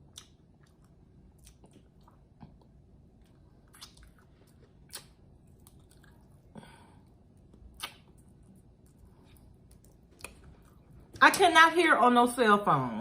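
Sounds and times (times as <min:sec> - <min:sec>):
mouth clicks and smacks: 0:00.0 - 0:02.8, 0:03.6 - 0:06.3, 0:07.4 - 0:08.5
wet chewing: 0:00.0 - 0:11.1.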